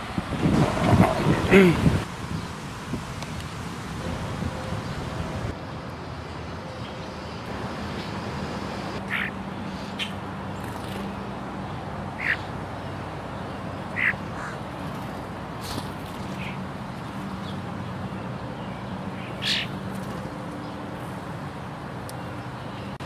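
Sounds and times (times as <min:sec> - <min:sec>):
crows cawing: 0:12.2 - 0:12.4, 0:14.0 - 0:14.6.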